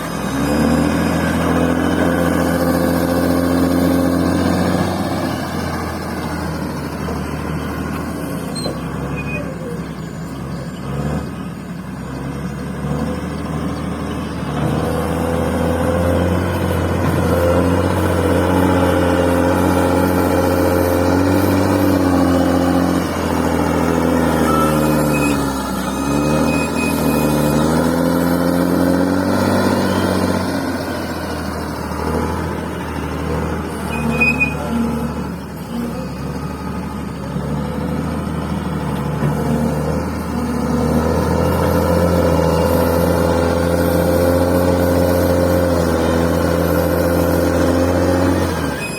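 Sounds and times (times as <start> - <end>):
bulldozer diesel engine under load: 0.0 - 48.9.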